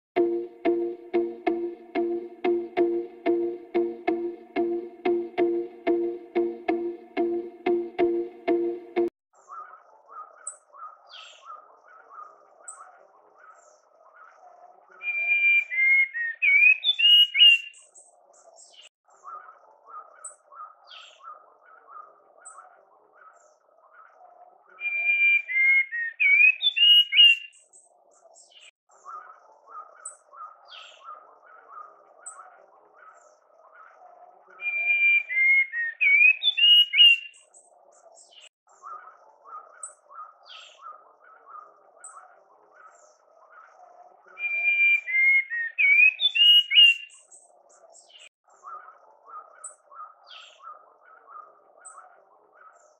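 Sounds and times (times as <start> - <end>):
birds singing: 15.0 - 24.2, 24.8 - 52.9.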